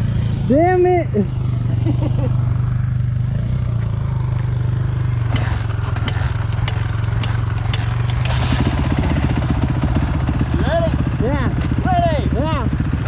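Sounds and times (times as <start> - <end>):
dirt bike engine running: 0.0 - 13.0
sharp clicks and scrapes: 5.2 - 9.0.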